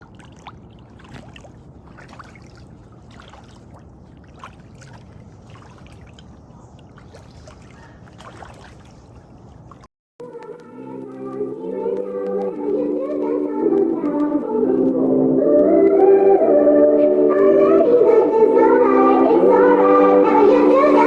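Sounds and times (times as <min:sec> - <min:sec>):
small water splashes: 0:00.0 - 0:09.9
water lapping and trickling: 0:00.0 - 0:16.1
music: 0:10.2 - 0:21.0.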